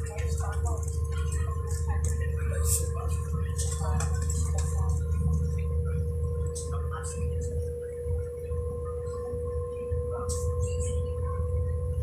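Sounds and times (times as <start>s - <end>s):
humming whine: 0.0s - 12.0s
train rumble: 0.0s - 12.0s.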